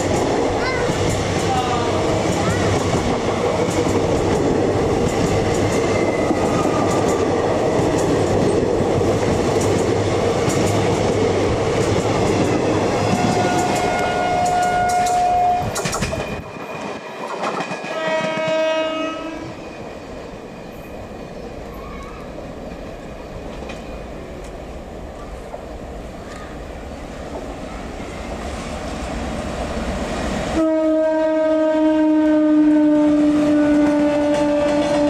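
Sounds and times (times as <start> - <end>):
train rumbling past: 0.0 - 35.0
train horn: 13.1 - 15.7, 17.8 - 19.6, 30.6 - 35.0
multi-tone horn: 17.9 - 19.5, 30.6 - 35.0.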